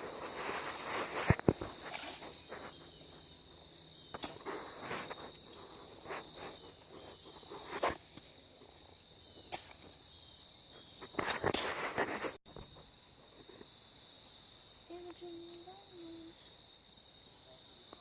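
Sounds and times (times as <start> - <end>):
rustling in dry leaves: 0.0 - 10.0
insects trilling: 0.0 - 18.0.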